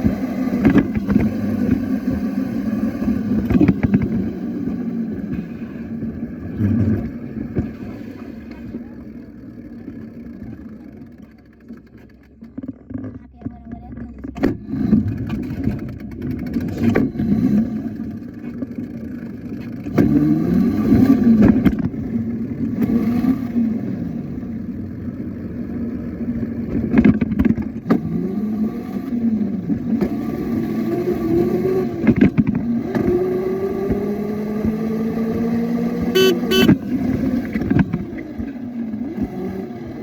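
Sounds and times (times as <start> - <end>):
motorbike engine revving: 0.0 - 13.0, 14.2 - 18.5, 26.4 - 40.0.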